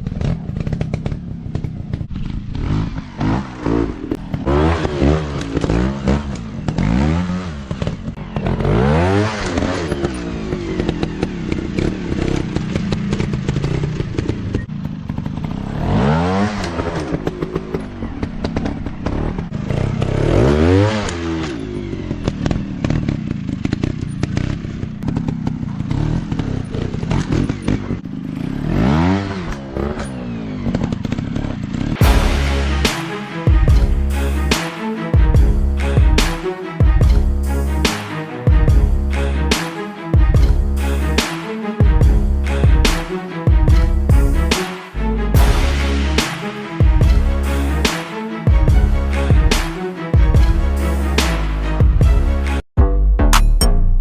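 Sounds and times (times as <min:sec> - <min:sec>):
bikes clattering and thumping: 0:00.0 - 0:20.2, 0:21.2 - 0:28.4, 0:29.5 - 0:32.0
dirt bike engines revving: 0:00.0 - 0:49.7.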